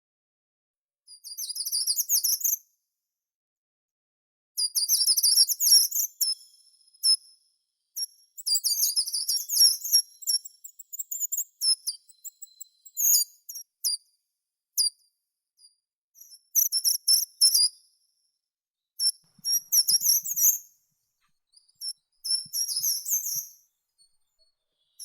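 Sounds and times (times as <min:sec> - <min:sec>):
songbird singing trills: 0:21.5 - 0:25.0.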